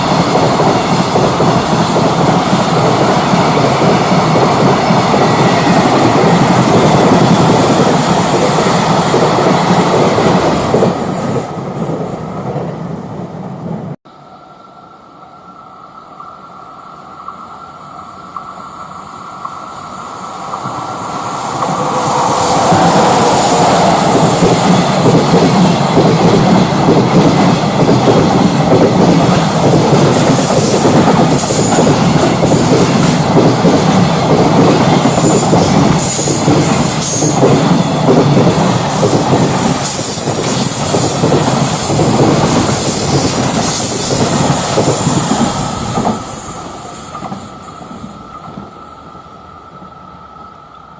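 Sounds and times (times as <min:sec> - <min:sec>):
freight train passing: 0:00.0 - 0:50.9
high wheel squeal: 0:42.8 - 0:49.7.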